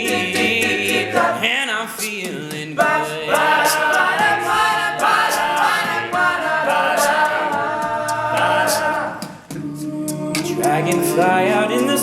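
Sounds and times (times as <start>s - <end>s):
male a cappella group singing: 0.0s - 12.0s.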